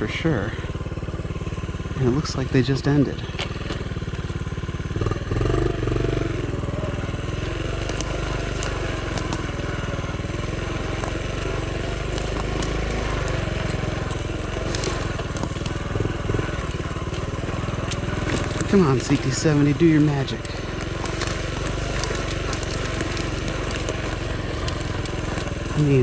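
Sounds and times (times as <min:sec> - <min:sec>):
motorcycle engine running: 0:00.0 - 0:26.0
crackles and snaps: 0:06.9 - 0:26.0.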